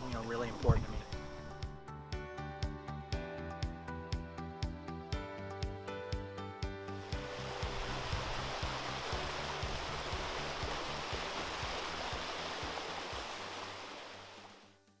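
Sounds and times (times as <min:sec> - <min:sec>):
rushing water: 0:00.0 - 0:01.8, 0:06.9 - 0:14.8.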